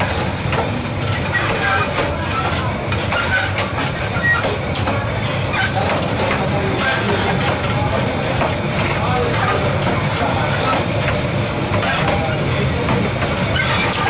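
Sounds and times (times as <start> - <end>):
train wheels rumbling on track: 0.0 - 14.0
short wheel squeals: 1.1 - 4.6, 11.8 - 14.0.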